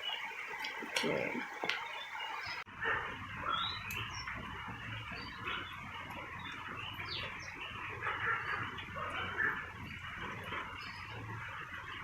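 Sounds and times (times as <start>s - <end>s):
steady outdoor hiss: 0.0s - 2.7s
birds chirping: 0.0s - 12.0s.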